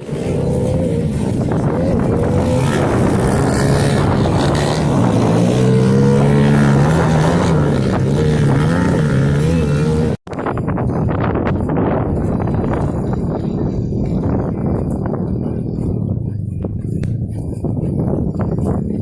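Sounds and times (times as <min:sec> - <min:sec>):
small motorbike engines revving: 0:00.0 - 0:10.5.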